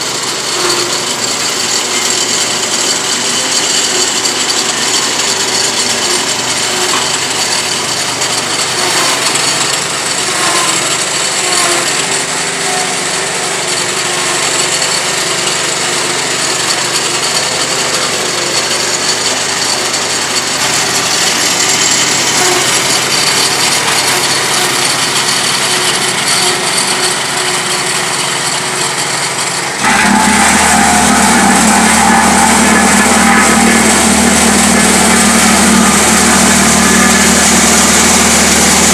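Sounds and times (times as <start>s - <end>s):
road repair machinery running: 0.0s - 38.9s
engine running with deep hum: 29.7s - 38.9s.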